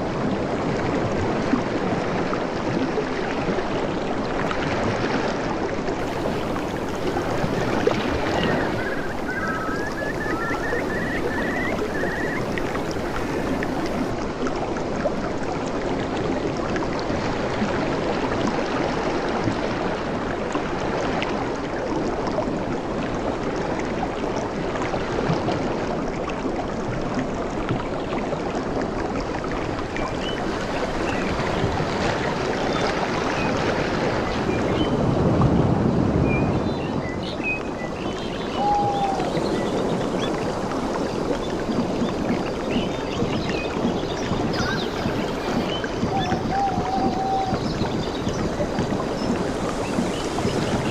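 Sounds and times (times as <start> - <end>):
rushing water: 0.0 - 50.9
bird chirping: 6.0 - 14.1, 44.1 - 48.4.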